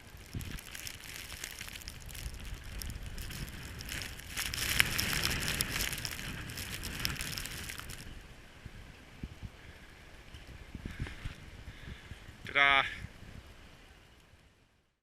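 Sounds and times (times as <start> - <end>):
skis scraping over snow: 0.0 - 8.1
wind rumble on microphone: 0.0 - 14.7.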